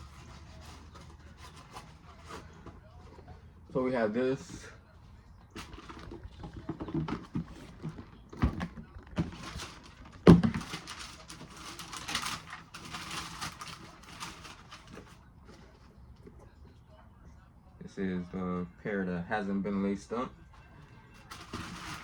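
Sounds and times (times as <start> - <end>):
crinkly paper rustling: 0.0 - 3.7, 5.5 - 16.5, 20.6 - 22.0
knocks on cardboard shoebox: 10.2 - 10.7.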